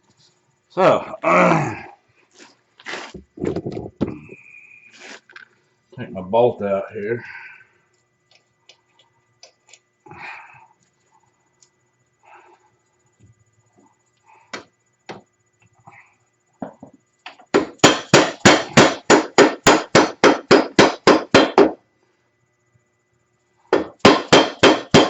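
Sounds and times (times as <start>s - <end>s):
hammer striking metal: 17.6s - 21.7s, 23.8s - 25.0s.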